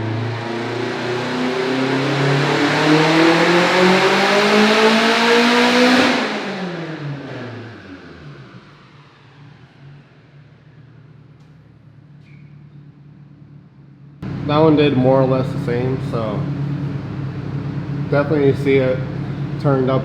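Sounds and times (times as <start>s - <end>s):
car engine revving under full throttle: 0.0s - 9.0s, 14.2s - 20.0s.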